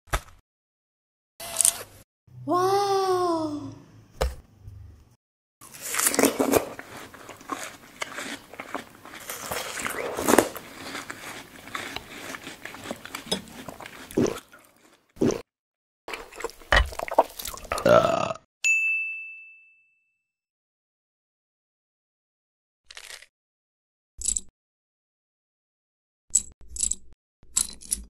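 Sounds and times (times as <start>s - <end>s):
wet crunchy chewing: 5.6s - 15.4s, 16.1s - 18.0s.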